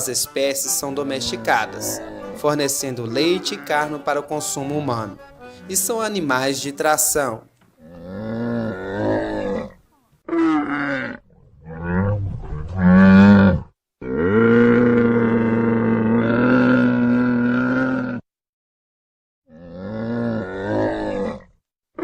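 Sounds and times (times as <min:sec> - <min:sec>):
camel calling: 0:00.0 - 0:05.9, 0:07.8 - 0:18.2.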